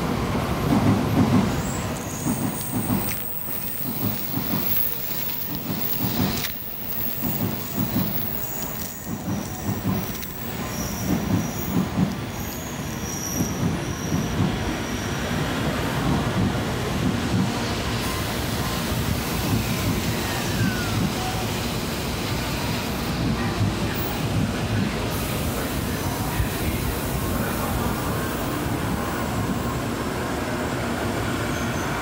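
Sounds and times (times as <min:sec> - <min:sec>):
train wheels rumbling on rails: 0:00.0 - 0:32.0
high brake squeals: 0:01.6 - 0:15.4, 0:31.4 - 0:32.0.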